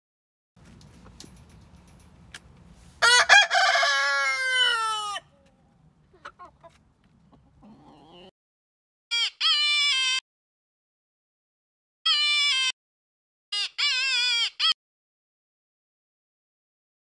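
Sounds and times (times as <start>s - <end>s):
rooster crowing: 3.0s - 5.4s
faint hen clucks: 4.2s - 8.3s.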